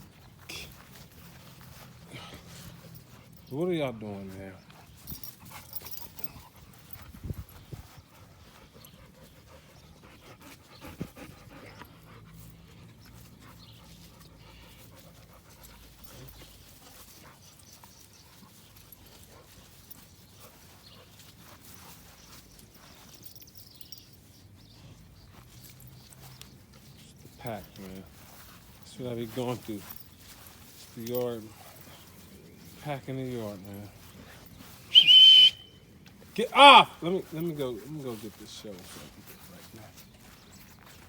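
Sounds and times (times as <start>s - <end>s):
dog panting: 0.0s - 3.5s, 4.4s - 23.4s
faint clicks and rustles: 0.0s - 3.6s, 4.6s - 35.0s.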